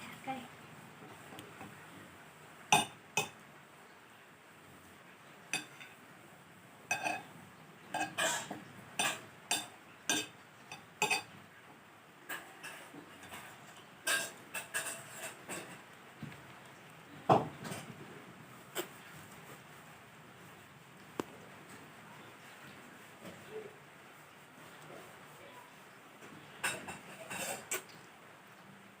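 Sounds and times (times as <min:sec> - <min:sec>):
utensils clinking against a bowl: 0:02.7 - 0:03.4, 0:05.5 - 0:06.0, 0:06.9 - 0:07.3, 0:07.9 - 0:11.4, 0:12.3 - 0:15.8, 0:26.6 - 0:28.0.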